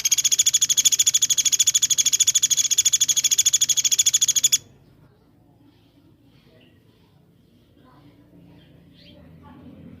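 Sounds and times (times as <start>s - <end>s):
songbird rapid trill: 0.0s - 4.8s.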